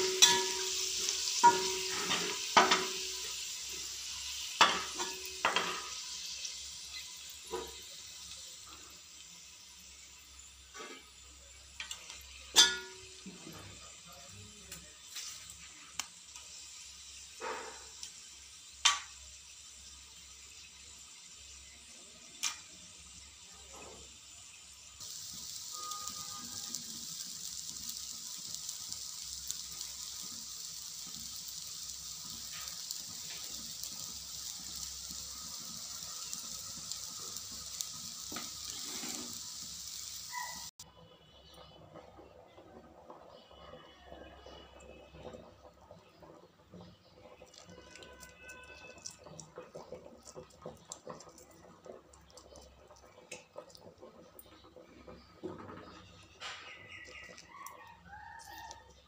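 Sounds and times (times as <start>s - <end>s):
clinks against a pot: 0.0s - 0.8s, 11.8s - 13.2s
rice sizzling in hot oil: 0.0s - 59.0s.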